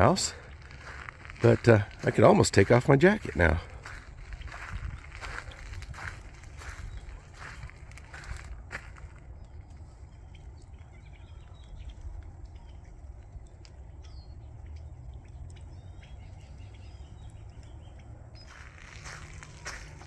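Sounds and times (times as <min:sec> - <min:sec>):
footsteps: 0:00.0 - 0:09.9, 0:18.4 - 0:20.0
small birds chirping: 0:00.0 - 0:20.0
steady low rumble: 0:00.0 - 0:20.0.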